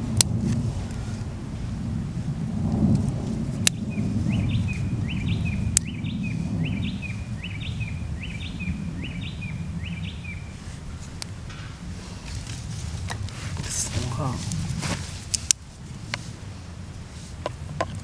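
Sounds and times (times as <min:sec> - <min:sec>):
thunder rumbling: 0:00.0 - 0:15.3
bird calling: 0:03.7 - 0:11.9
sharp ticks: 0:05.7 - 0:05.9.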